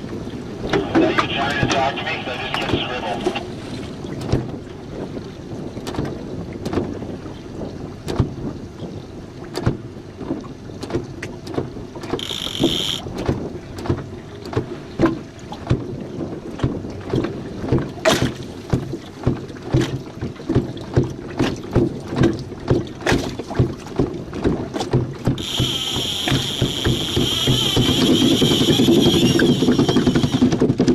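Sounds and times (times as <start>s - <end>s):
water slapping against hull: 0.0s - 30.9s
high-pitched tone: 12.2s - 13.0s, 25.4s - 30.4s.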